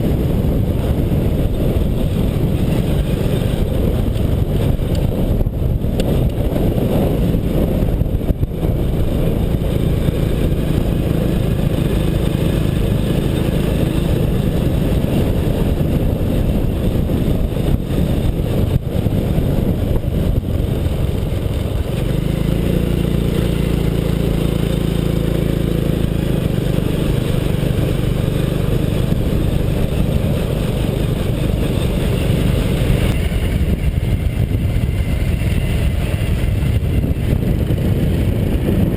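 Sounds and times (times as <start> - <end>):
motorcycle engine running: 0.0 - 38.9
wind rumble on microphone: 0.0 - 38.9.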